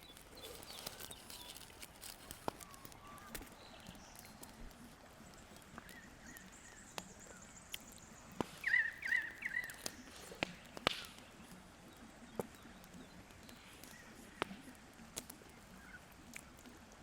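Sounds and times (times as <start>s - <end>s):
faint outdoor background: 0.0s - 17.0s
bird wavering call: 8.6s - 9.8s.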